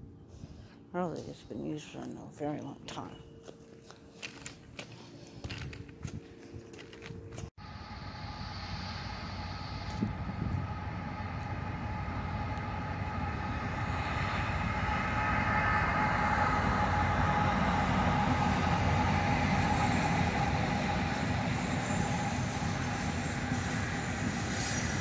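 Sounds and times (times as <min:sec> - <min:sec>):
thin steady whine: 0:00.0 - 0:25.0
train rumbling past: 0:06.8 - 0:25.0.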